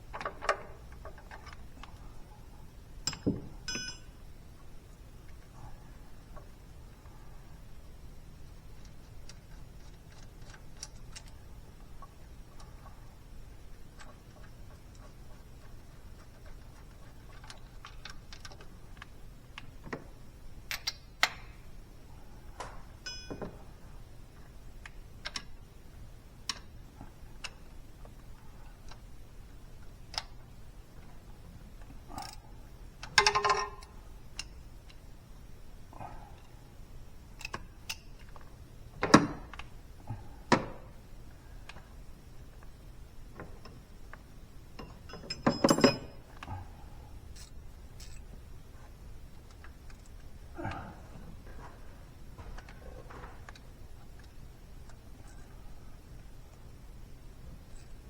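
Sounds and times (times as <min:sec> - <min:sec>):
low steady hum: 0:00.0 - 0:58.0
ringing metallic clank: 0:03.1 - 0:04.1
sharp clink: 0:03.1 - 0:04.1.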